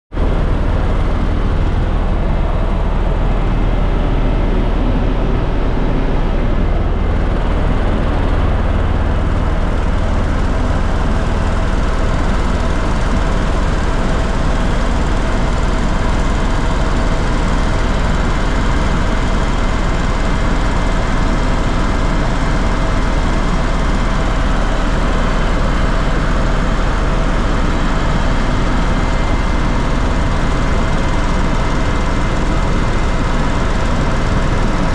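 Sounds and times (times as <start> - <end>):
deep hum: 0.2 - 16.2
aircraft engine drone: 0.2 - 34.9.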